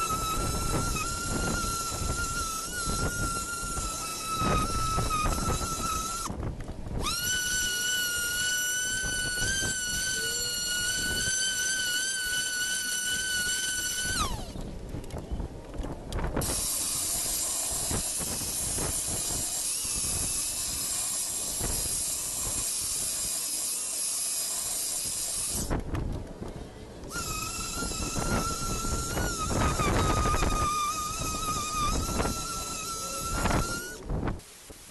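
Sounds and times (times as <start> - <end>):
power tool motor whining: 0.0 - 6.3, 6.9 - 14.7, 16.4 - 25.9, 27.1 - 34.1
steady hiss: 0.0 - 14.6, 16.2 - 34.9.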